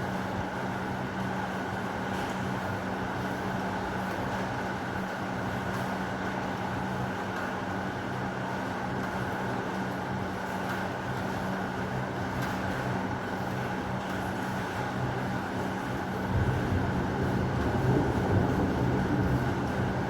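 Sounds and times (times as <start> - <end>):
heavy rain: 16.2 - 20.0.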